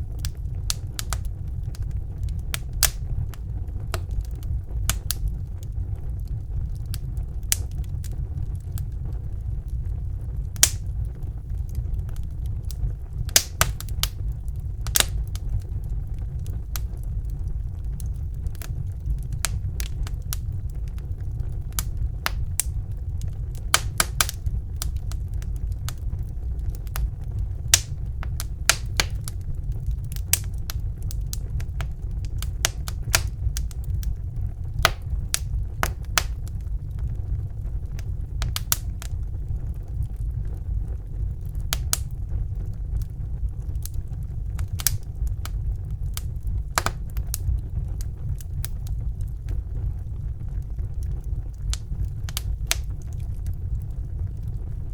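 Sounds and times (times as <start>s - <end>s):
burning wood crackling and popping: 0.0s - 54.9s
low whoosh of flames: 0.0s - 54.9s.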